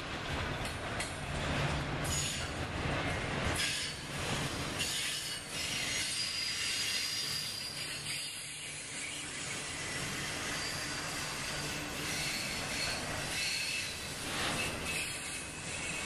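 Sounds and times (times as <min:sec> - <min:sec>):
freight train rumbling and rattling: 0:00.0 - 0:16.0
high-pitched wheel squeal: 0:04.8 - 0:16.0.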